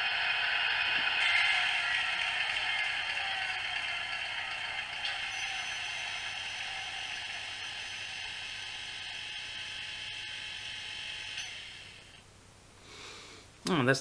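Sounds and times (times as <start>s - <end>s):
locomotive engine winding down: 0.0s - 12.2s.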